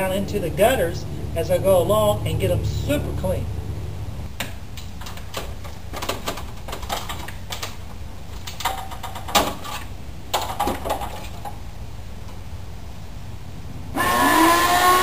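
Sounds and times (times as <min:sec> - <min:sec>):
steady low rumble: 0:00.0 - 0:04.8.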